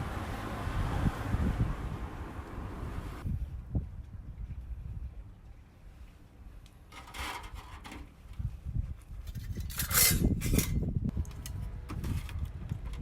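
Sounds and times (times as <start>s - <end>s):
wind rumble on microphone: 0.0s - 6.6s, 7.3s - 13.0s
objects scraping and rubbing: 6.9s - 8.1s, 9.3s - 10.8s.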